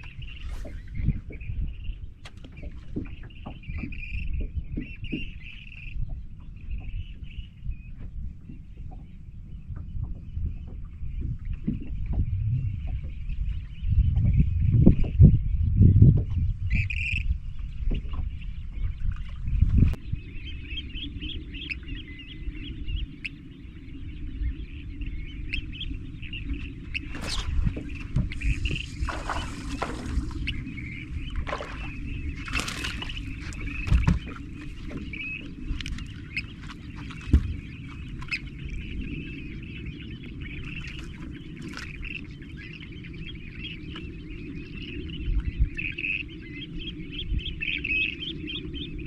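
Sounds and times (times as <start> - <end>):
low background rumble: 0.0 - 49.0
low wind: 0.0 - 49.0
water noise: 0.0 - 49.0
birds chirping and calling: 16.7 - 49.0.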